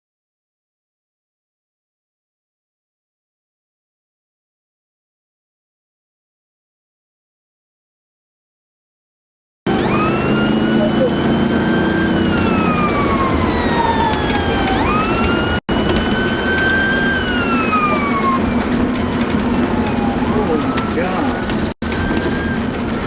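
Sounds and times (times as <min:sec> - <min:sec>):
heavy steady roar: 0:09.7 - 0:23.0
siren wailing: 0:09.7 - 0:23.0.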